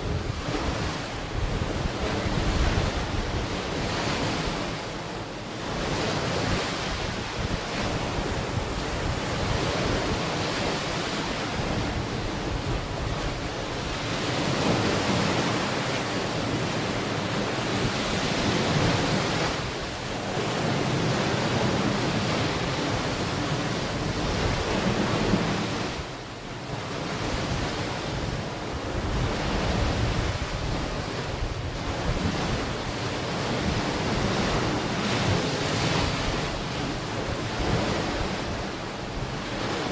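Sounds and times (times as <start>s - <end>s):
wind buffeting microphone: 0.0s - 26.2s, 27.0s - 39.9s
ocean waves breaking on beach: 0.0s - 39.9s.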